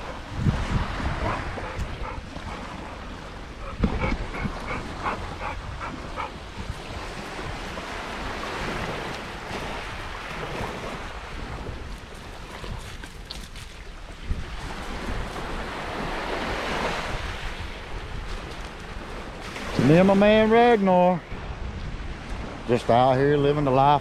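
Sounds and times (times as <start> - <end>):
river water rushing: 0.0 - 11.2
wind buffeting microphone: 0.0 - 24.0.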